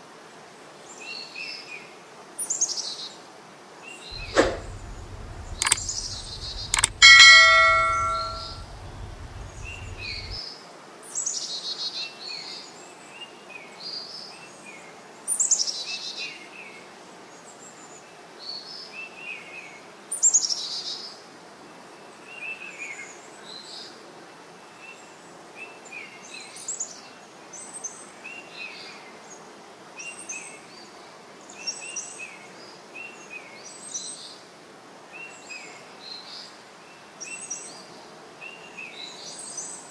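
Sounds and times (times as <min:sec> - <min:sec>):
bell-like chime: 0:04.2 - 0:10.4
click: 0:04.2 - 0:10.4.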